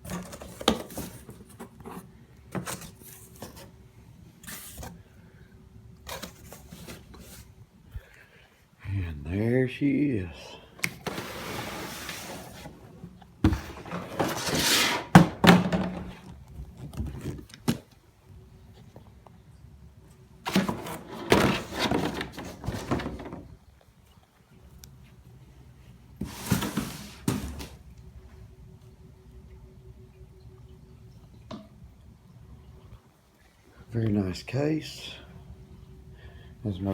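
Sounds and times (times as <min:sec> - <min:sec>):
packing material rustling and scraping: 0:11.0 - 0:17.8, 0:20.5 - 0:23.4, 0:26.2 - 0:27.8.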